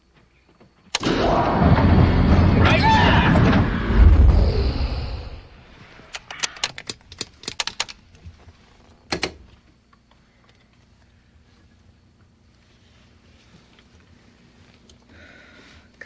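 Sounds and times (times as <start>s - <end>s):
loud low rumble: 1.0s - 5.8s
sharp clicks and clacks: 6.1s - 8.0s.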